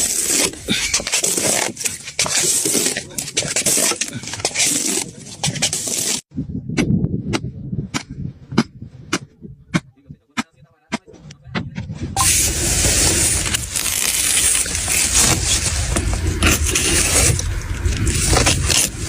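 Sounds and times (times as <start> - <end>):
knife cutting watermelon crackling: 13.4 - 19.0.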